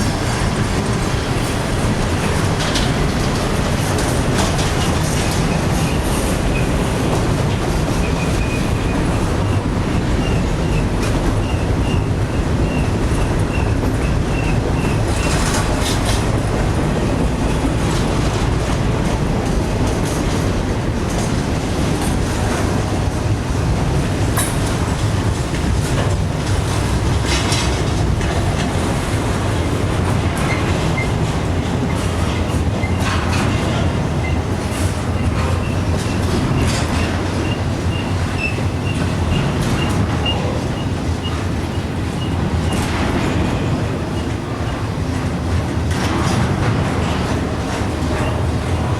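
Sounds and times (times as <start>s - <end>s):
freight train rumbling past: 0.0s - 48.9s
wheel clacks: 0.0s - 48.9s
faint pulsing wheel squeal: 35.2s - 42.4s.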